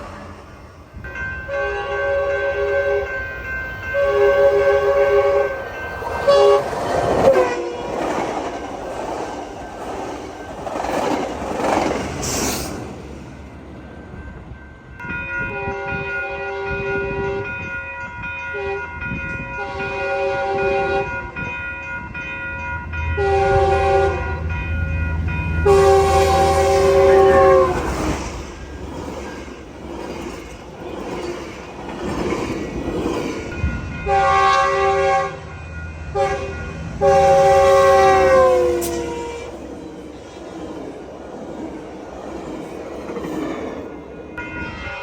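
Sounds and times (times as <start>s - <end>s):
train air horn blasts: 1.4s - 3.3s, 3.9s - 7.9s, 15.4s - 17.6s, 18.5s - 18.9s, 19.6s - 21.3s, 23.1s - 24.6s, 25.5s - 28.1s, 34.0s - 39.7s, 44.4s - 45.0s.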